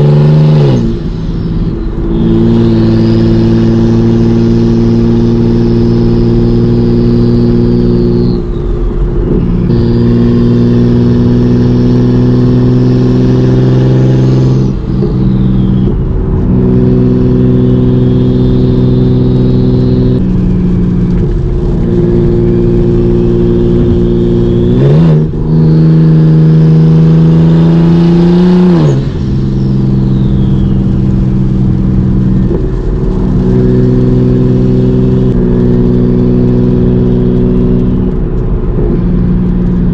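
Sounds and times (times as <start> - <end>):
car engine droning: 0.0 - 39.9
turbo whistle: 0.5 - 10.8, 11.4 - 20.4, 22.2 - 25.8, 28.1 - 31.4.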